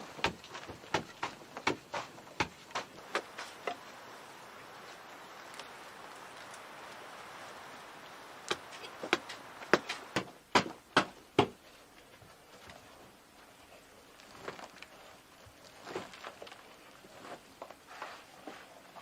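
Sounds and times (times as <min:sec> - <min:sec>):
steady hiss: 0:00.0 - 0:19.0
sharp knocks: 0:08.5 - 0:11.6.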